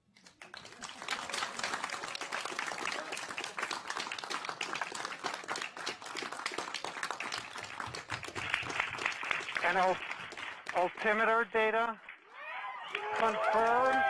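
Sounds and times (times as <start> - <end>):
crowd applauding: 0.2 - 14.0.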